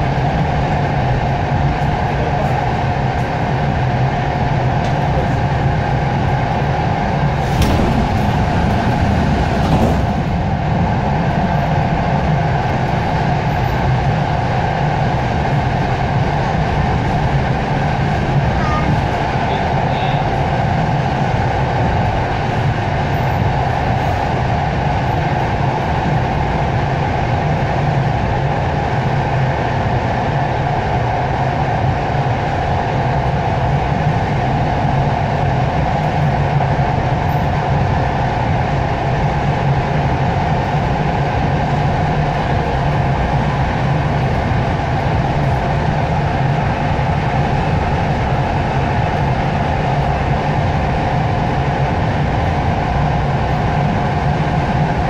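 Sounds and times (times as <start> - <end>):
train wheels rumbling on rails: 0.0 - 55.0
low hum: 4.9 - 13.8.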